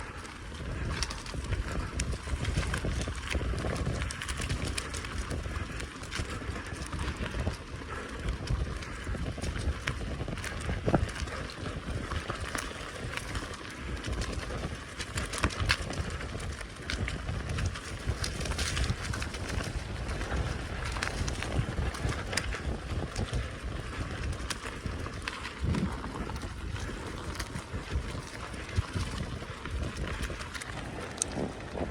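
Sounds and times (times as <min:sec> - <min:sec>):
bicycle tyres on rough track: 0:00.0 - 0:31.9
bike clicks and rattles: 0:00.0 - 0:31.9
wind rumble on microphone: 0:00.0 - 0:31.9.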